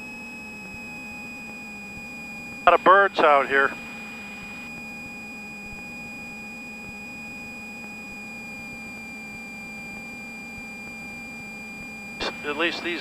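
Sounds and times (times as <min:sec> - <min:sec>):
high-pitched electrical whine: 0:00.0 - 0:13.0
low hum: 0:11.1 - 0:13.0.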